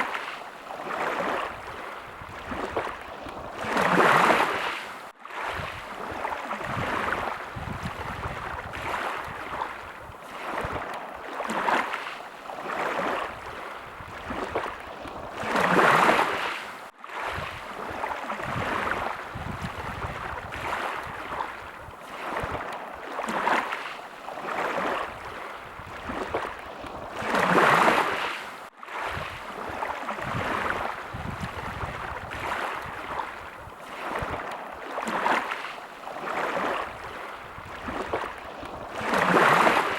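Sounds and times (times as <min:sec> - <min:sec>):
sea waves lapping: 0:00.0 - 0:39.9.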